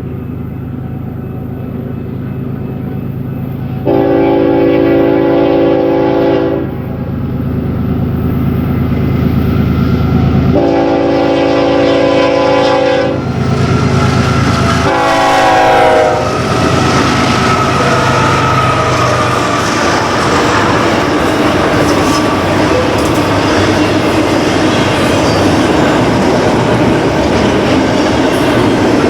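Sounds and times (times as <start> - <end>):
locomotive air horn blasts: 3.8 - 6.8, 10.5 - 19.8
diesel engine rumble: 13.2 - 29.0.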